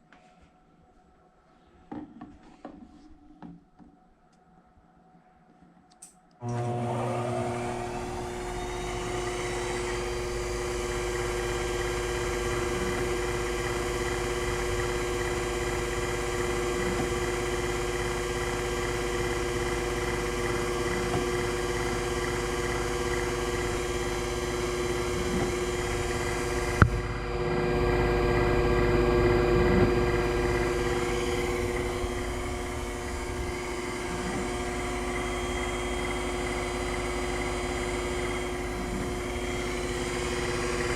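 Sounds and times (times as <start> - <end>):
lathe motor hum and whine: 6.4 - 40.9.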